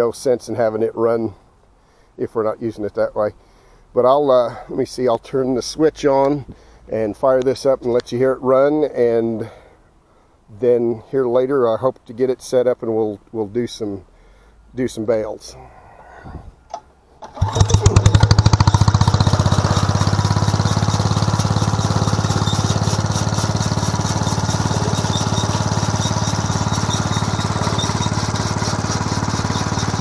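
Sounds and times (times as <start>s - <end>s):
small gasoline engine running: 17.3s - 30.0s.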